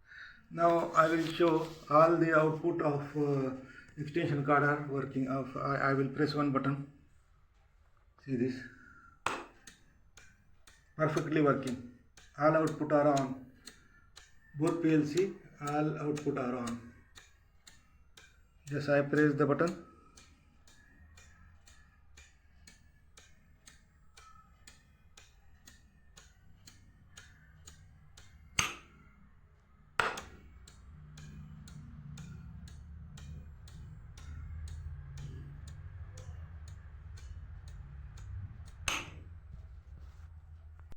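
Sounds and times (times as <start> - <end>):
rapid ticking: 8.5 - 29.2, 30.0 - 39.8
sharp clicks: 9.2 - 29.2, 30.0 - 39.5
low hum: 30.5 - 40.9.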